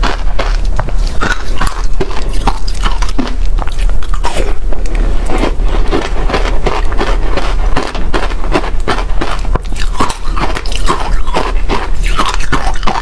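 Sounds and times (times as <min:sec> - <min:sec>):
ice being chewed and crunched: 0:00.0 - 0:13.0.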